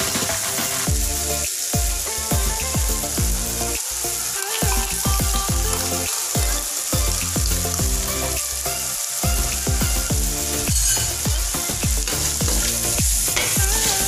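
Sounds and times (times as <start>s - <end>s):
background music: 0.0s - 14.0s
food sizzling in a wok: 0.0s - 14.0s
deep bass notes dropping in pitch: 0.9s - 3.8s, 4.6s - 8.4s, 9.2s - 13.4s.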